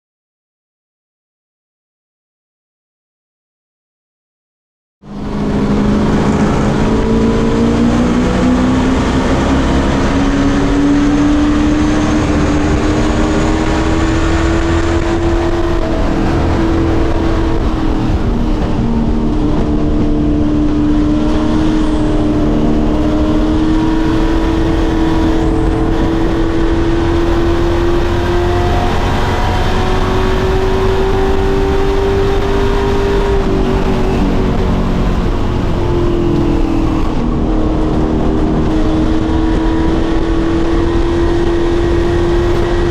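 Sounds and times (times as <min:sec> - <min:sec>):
race engine running at high revs: 0:05.0 - 0:42.9.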